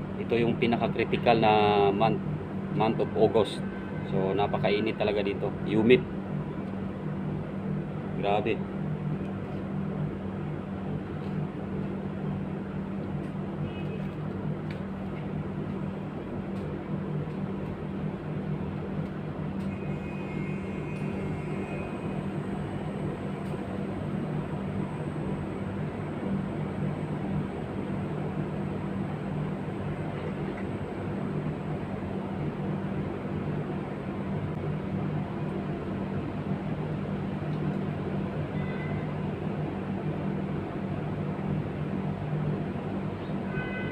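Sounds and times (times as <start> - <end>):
low machine hum: 0.0 - 43.9
faint short high tones: 38.6 - 39.1.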